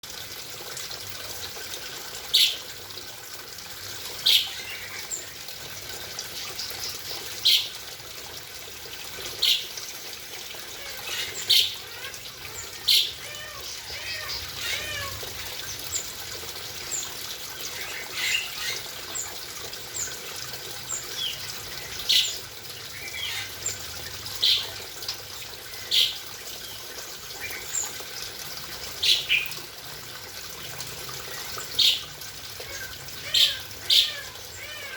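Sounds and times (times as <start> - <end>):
running water hiss: 0.0 - 34.9
birds warbling twitter: 2.2 - 2.8, 4.0 - 7.9, 9.2 - 29.8, 30.5 - 34.9
birds chirping: 31.2 - 34.9.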